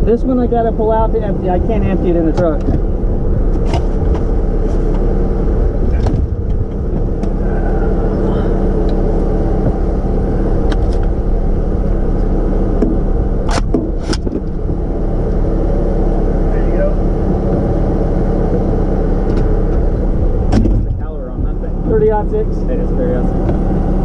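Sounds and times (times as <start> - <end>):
vehicle engine idling: 0.0 - 24.0
sharp clicks and knocks: 12.8 - 14.6.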